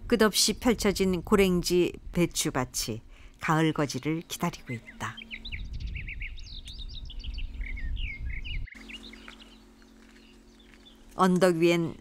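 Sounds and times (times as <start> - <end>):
faint steady hum: 0.0 - 12.0
small birds chirping: 3.5 - 12.0.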